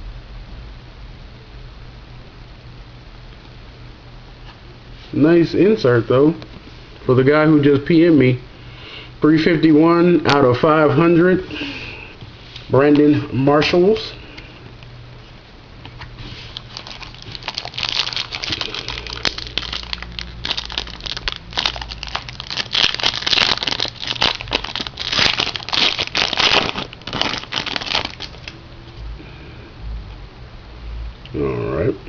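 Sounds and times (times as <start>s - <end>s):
plastic wrapper crinkling and tearing: 16.4s - 28.6s.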